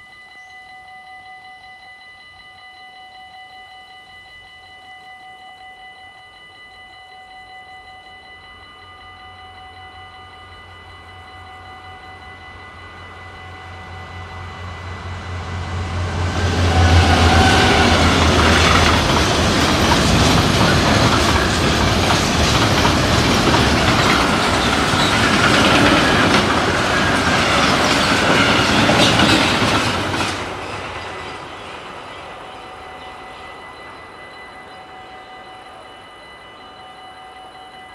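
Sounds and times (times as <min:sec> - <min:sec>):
crossing warning bell ringing: 0:00.0 - 0:37.9
locomotive low drone: 0:08.0 - 0:37.9
train wheels clattering over joints: 0:16.7 - 0:32.3.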